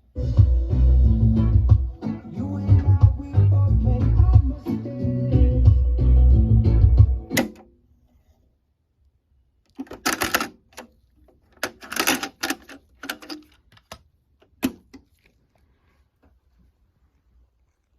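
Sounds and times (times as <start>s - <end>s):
cassette deck music: 0.1s - 7.7s
cassette deck clunk: 7.3s - 7.7s
cassette mechanism clicks: 7.3s - 7.7s, 9.7s - 14.9s.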